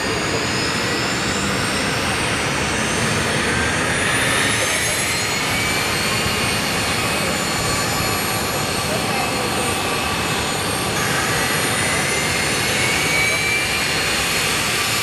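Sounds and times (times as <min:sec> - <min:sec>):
high jet whine: 0:00.0 - 0:15.0
jet engines rushing: 0:00.0 - 0:15.0.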